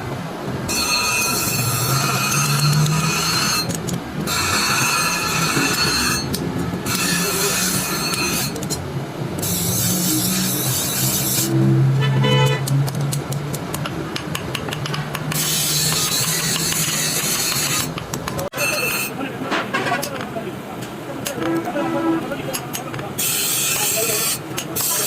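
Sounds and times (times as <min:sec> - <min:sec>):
blade on power grinder: 0:09.4 - 0:11.6.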